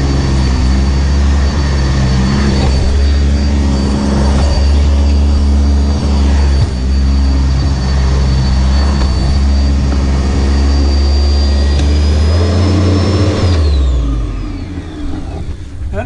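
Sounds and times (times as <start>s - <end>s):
upright vacuum cleaner running: 0.0s - 16.0s.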